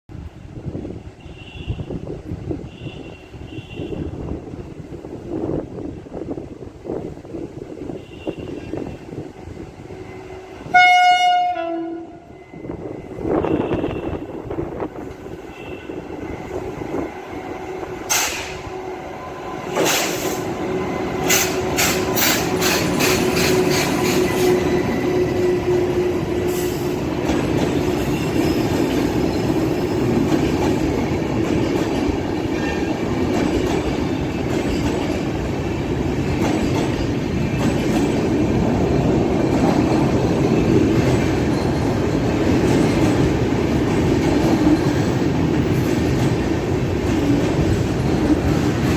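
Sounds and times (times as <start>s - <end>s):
train coaches rumbling past: 0.1s - 48.9s
train wheel clicks over rail joints: 18.1s - 18.6s, 21.2s - 24.2s.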